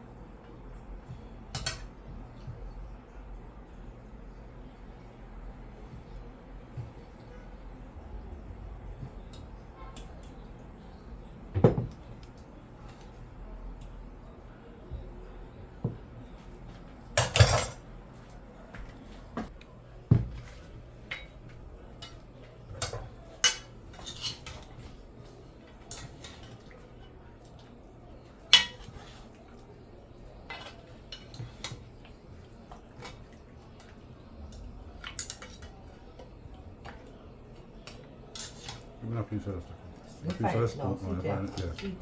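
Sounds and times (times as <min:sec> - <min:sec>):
utensils clinking on pots and plates: 0:01.5 - 0:02.6, 0:16.7 - 0:17.9, 0:20.3 - 0:29.6, 0:30.3 - 0:37.2, 0:37.8 - 0:39.0.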